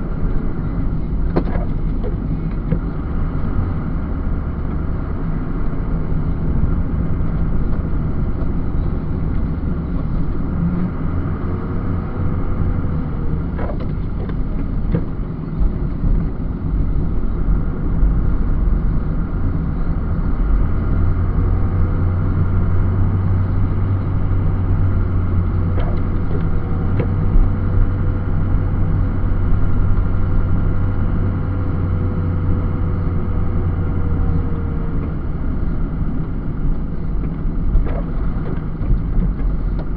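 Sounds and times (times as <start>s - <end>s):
snow plow truck engine running: 0.0s - 39.9s.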